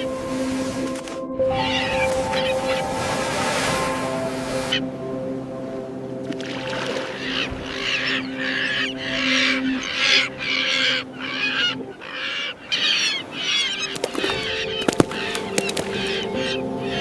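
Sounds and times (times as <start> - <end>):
flock of birds squawking: 1.5 - 3.7, 7.1 - 17.0.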